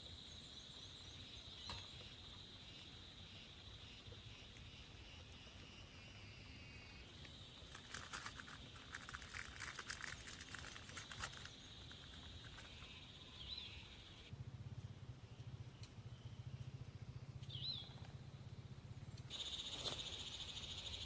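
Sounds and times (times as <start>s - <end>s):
faint clicks and crackles: 7.1s - 13.2s
bird chirp: 11.3s - 14.3s, 15.3s - 18.1s, 18.9s - 21.0s
high-pitched insect chirring: 19.3s - 21.0s.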